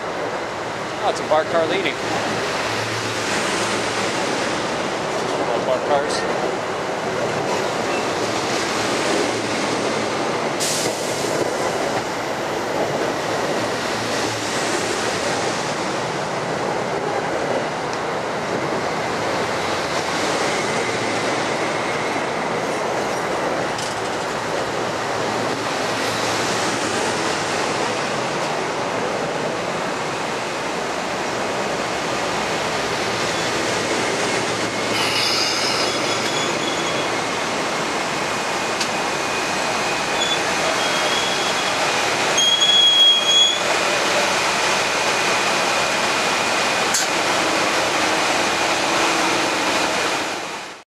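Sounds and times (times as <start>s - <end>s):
train wheels rumbling on rail: 0.0s - 50.8s
high squeal of wheels: 34.9s - 37.2s, 39.4s - 43.7s.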